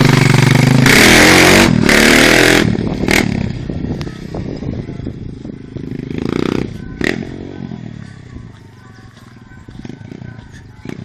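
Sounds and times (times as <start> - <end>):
dirt bike engine high revs: 0.0 - 3.7.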